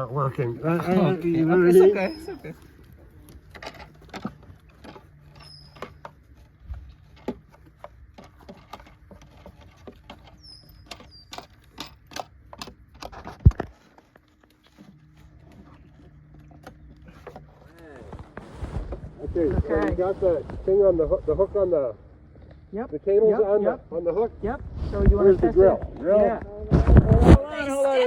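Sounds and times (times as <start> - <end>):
metal parts clicking and rattling: 8.2 - 13.7.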